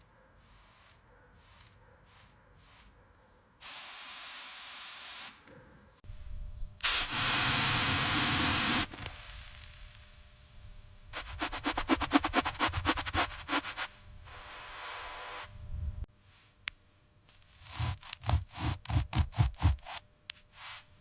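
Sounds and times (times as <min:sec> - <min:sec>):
spraying hiss: 0:03.6 - 0:05.4, 0:06.8 - 0:09.5.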